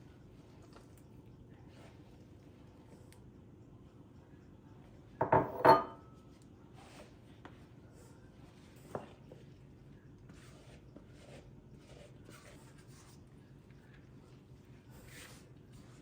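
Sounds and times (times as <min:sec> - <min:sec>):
kitchenware clinking: 0:05.2 - 0:06.1.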